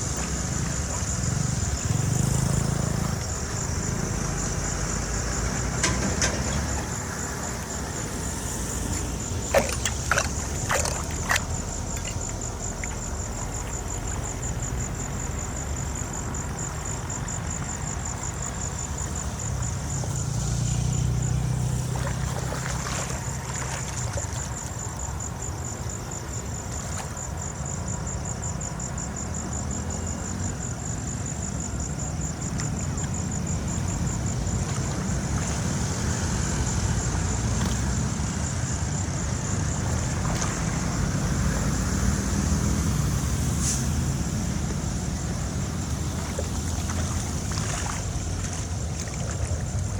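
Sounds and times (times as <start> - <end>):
insects trilling: 0.0 - 49.9
low engine rumble: 30.1 - 49.9.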